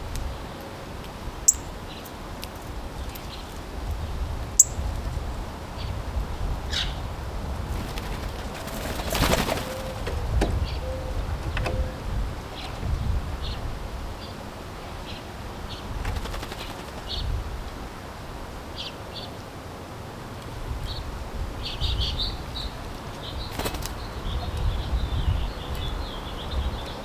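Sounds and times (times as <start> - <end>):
small birds chirping: 1.4 - 6.0, 6.7 - 17.4, 20.8 - 27.0
birds twittering: 1.5 - 5.0, 6.7 - 17.4, 20.8 - 27.0
wings flapping: 7.6 - 10.8, 15.9 - 17.2, 23.2 - 24.1.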